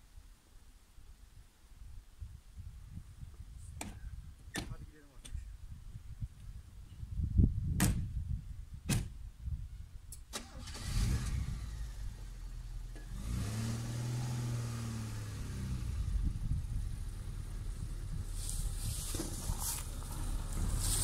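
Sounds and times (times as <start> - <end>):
car engine starting and running: 10.2 - 21.0.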